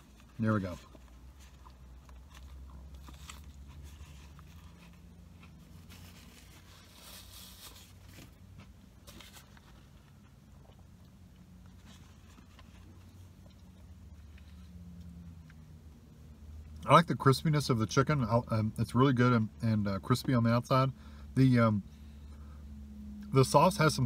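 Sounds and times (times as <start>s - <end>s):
man chewing crispy food: 0.0s - 9.0s, 9.6s - 15.6s.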